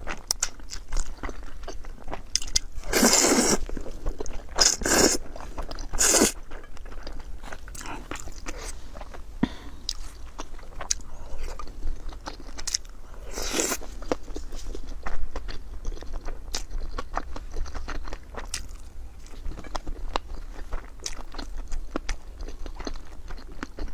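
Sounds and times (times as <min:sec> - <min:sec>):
crunchy chewing: 0:00.0 - 0:23.9
mouth clicks: 0:04.6 - 0:06.4.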